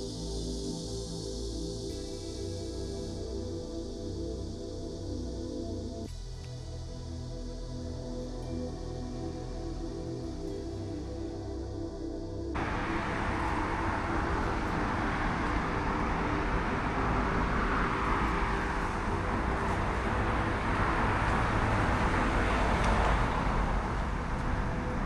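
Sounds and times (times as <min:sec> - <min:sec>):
road traffic noise: 0:12.6 - 0:25.0.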